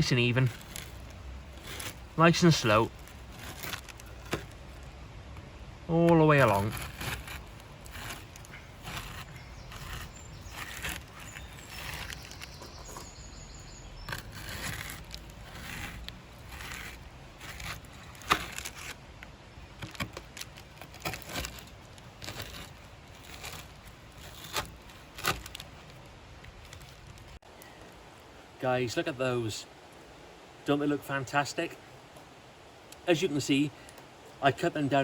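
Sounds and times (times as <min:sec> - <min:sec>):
knife crunching through chocolate: 0:06.6 - 0:13.0, 0:14.0 - 0:19.0.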